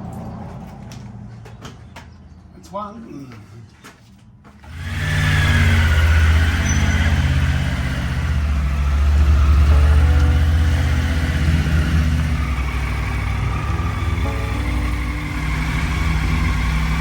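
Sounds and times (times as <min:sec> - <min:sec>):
vehicle engine running: 0:04.5 - 0:17.0.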